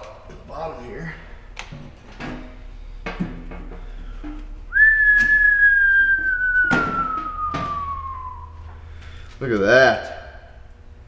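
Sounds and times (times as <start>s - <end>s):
whistled note sliding down: 4.7s - 8.6s.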